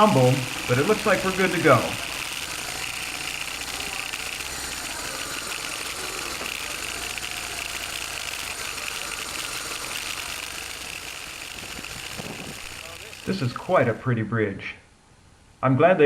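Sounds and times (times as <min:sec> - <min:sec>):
motorcycle engine running: 0:00.0 - 0:14.0
wind and road noise: 0:10.8 - 0:12.8.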